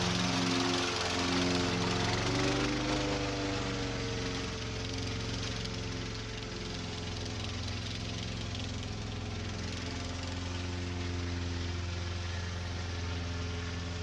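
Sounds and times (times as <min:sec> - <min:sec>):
engine running with low hum: 0:00.0 - 0:14.0.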